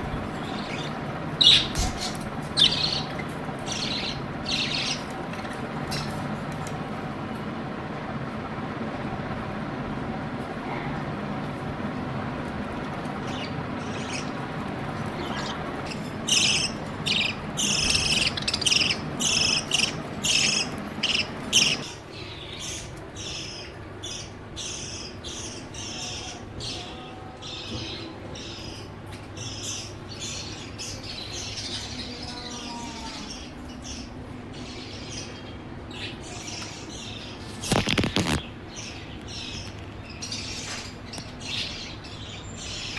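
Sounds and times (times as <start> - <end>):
birds chirping: 0.0 - 42.9.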